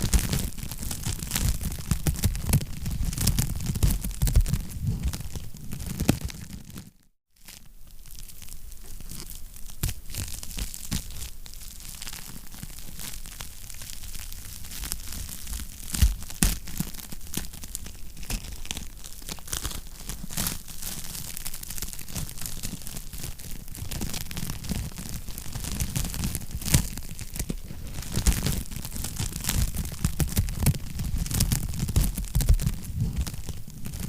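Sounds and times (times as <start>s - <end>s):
wood fire crackling: 0.0s - 6.8s, 7.6s - 34.0s
fire low rumble: 0.1s - 6.0s, 26.2s - 34.0s.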